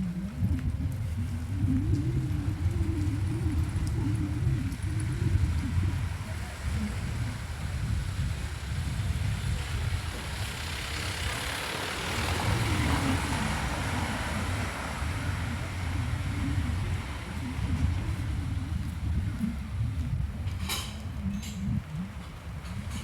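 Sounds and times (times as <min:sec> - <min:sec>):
steady low rumble: 0:00.0 - 0:10.4, 0:12.2 - 0:23.0
vehicle passing on street: 0:00.1 - 0:23.0.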